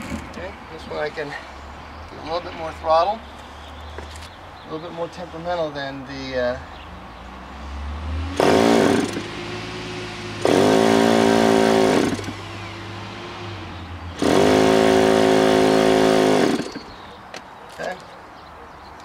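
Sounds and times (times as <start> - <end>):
model airplane engine revving: 8.4 - 9.4, 10.4 - 12.4, 14.1 - 17.0.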